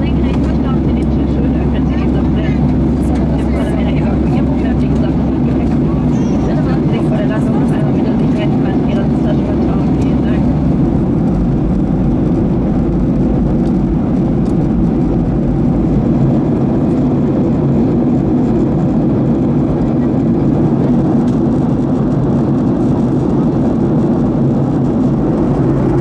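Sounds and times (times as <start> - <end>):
airplane cabin roar: 0.0 - 26.0.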